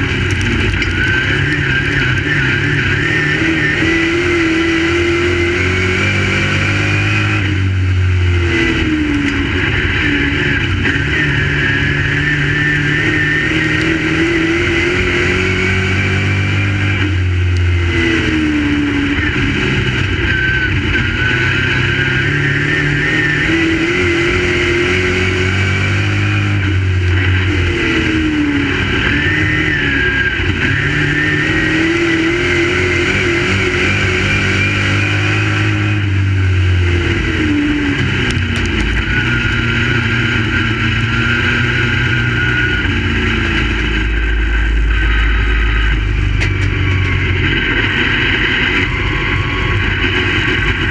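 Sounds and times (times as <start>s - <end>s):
race car engines running laps: 0.0s - 50.9s.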